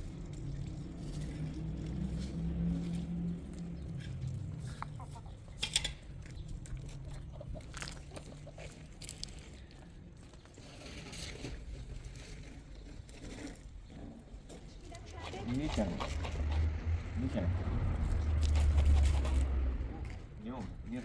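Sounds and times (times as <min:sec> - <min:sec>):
chickens clucking: 0:03.7 - 0:09.8, 0:15.0 - 0:17.0, 0:18.3 - 0:19.7.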